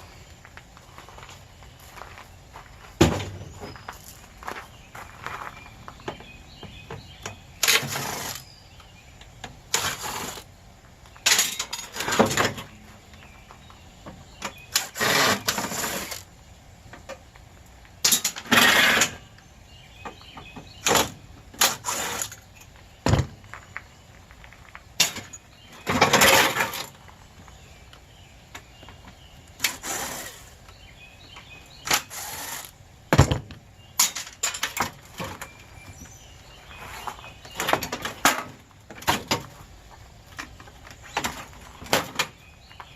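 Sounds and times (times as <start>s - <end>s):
rasping metal scrapes: 7.6s - 8.5s, 14.7s - 16.2s, 18.1s - 19.3s, 21.6s - 22.4s, 29.6s - 30.6s, 31.8s - 32.8s.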